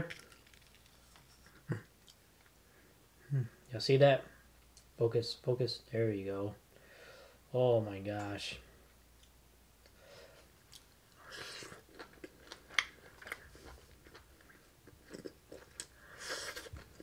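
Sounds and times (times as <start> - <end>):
person chewing crispy fried fish: 10.7 - 17.0.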